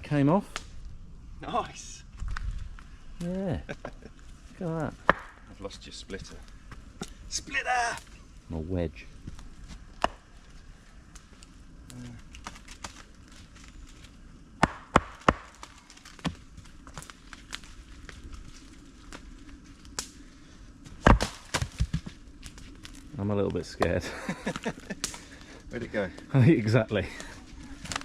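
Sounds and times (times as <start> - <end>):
wedge strikes splitting firewood: 5.0 - 5.4, 10.0 - 10.2, 14.6 - 17.1, 20.8 - 22.2.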